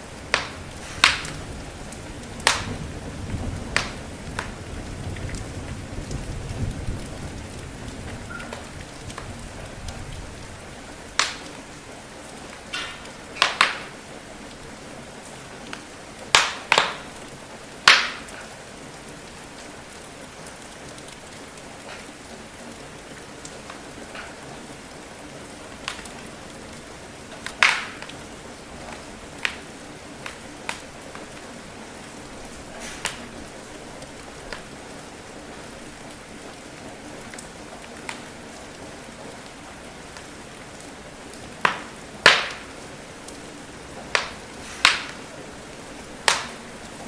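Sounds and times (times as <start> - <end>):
low rumble of thunder: 0.0 - 11.7
wood fire crackling and popping: 0.0 - 14.6, 15.2 - 24.9, 25.7 - 34.7, 36.0 - 47.0
steady rain hiss: 0.0 - 47.0.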